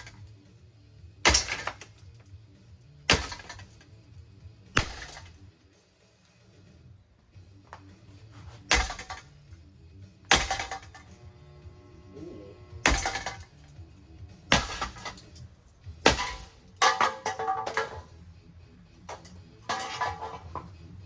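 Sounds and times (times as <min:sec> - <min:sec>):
rattling debris: 0:01.2 - 0:02.2, 0:03.1 - 0:04.0, 0:04.8 - 0:05.4, 0:08.2 - 0:09.5, 0:10.3 - 0:11.2, 0:12.8 - 0:18.2, 0:19.0 - 0:20.8
ceiling fan crashing: 0:10.3 - 0:11.2, 0:12.8 - 0:13.7, 0:14.4 - 0:15.4, 0:16.0 - 0:18.1.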